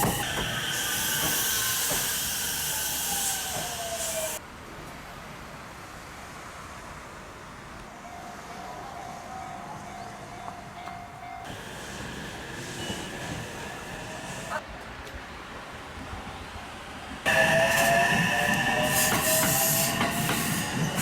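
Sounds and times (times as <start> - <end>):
electric train hissing: 0.0 - 4.4, 11.4 - 14.6, 17.2 - 21.0.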